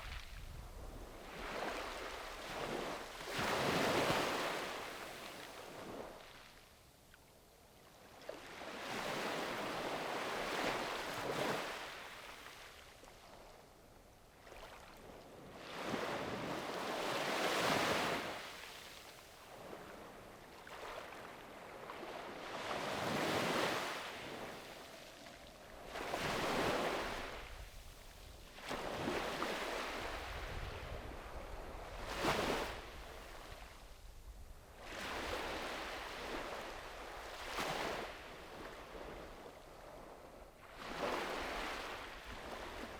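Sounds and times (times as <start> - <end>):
low rumble of wind: 0.0 - 3.3, 24.3 - 37.5
small waves washing up beach: 0.0 - 6.6, 8.1 - 13.5, 14.3 - 34.0, 34.6 - 42.9.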